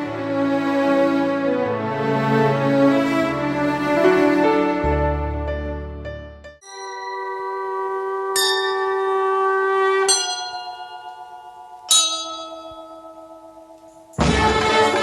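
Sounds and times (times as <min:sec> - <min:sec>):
bell-like chime chords: 0:06.6 - 0:09.2, 0:10.1 - 0:14.2.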